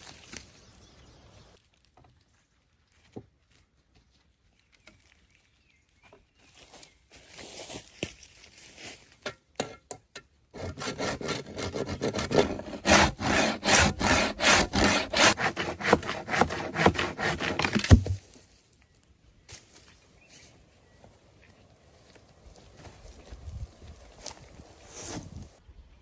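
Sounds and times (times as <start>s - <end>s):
hand saw cutting wood: 10.6s - 18.2s.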